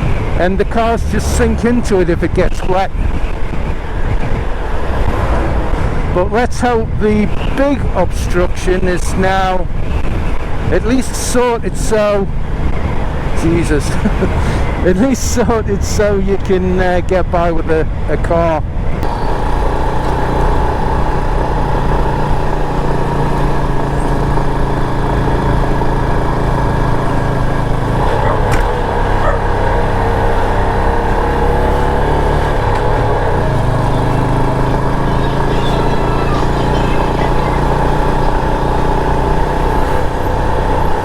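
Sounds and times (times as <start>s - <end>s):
motorcycle engine running: 0.0s - 7.7s, 19.0s - 41.0s
wind and road noise: 0.0s - 41.0s.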